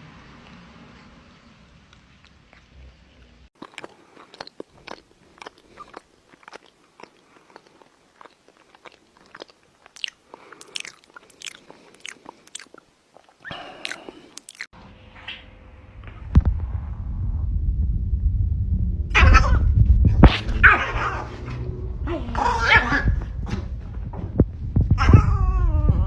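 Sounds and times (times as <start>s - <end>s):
crunching and chewing: 1.9s - 14.7s.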